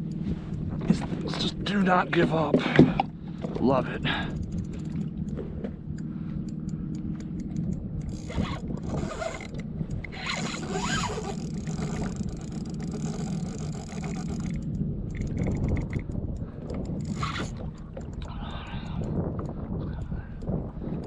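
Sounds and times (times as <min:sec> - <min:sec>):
steady low rumble: 0:00.0 - 0:21.0
fishing reel zipping: 0:06.5 - 0:19.1.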